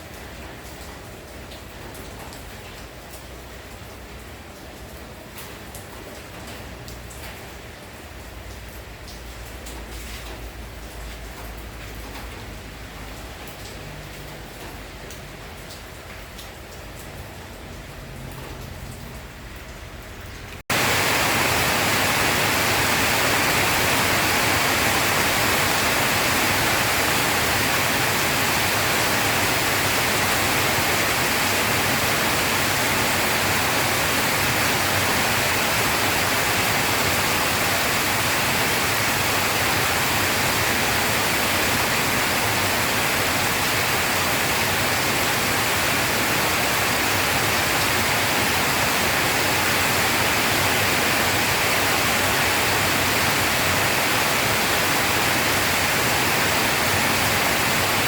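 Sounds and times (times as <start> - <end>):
heavy rain hiss: 20.7 - 58.0.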